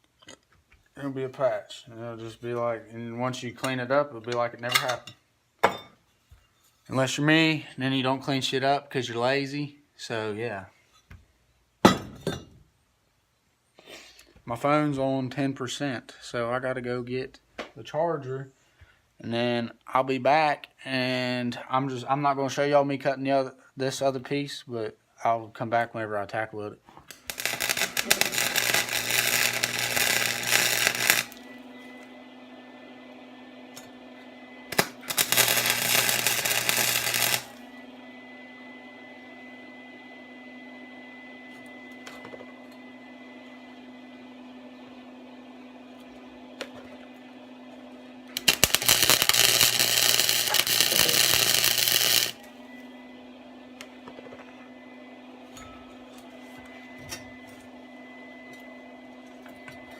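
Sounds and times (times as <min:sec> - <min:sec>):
welder bursts: 0:27.1 - 0:31.7, 0:34.7 - 0:37.8, 0:48.3 - 0:52.6
quiet steady hum: 0:27.1 - 0:32.1, 0:33.0 - 0:38.3.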